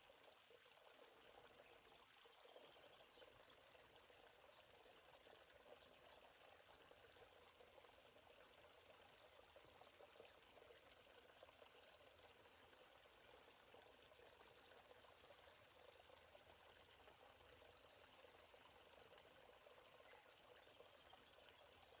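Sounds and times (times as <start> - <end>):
stream water trickling: 0.0 - 22.0.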